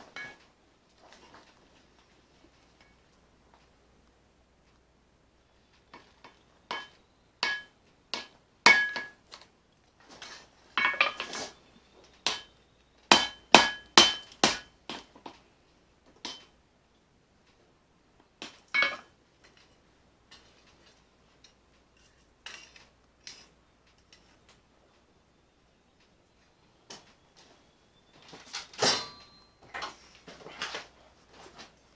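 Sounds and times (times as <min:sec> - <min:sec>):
hammer striking steel on anvil: 0:06.7 - 0:09.2, 0:12.3 - 0:15.1.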